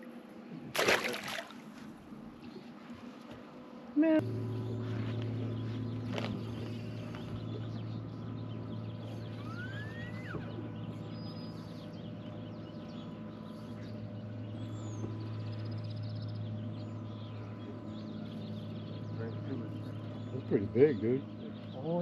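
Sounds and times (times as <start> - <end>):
steady low hum: 0.0 - 22.0
birds chirping: 0.8 - 22.0
bird trill: 4.6 - 22.0
rising whistled bird note: 9.2 - 11.5.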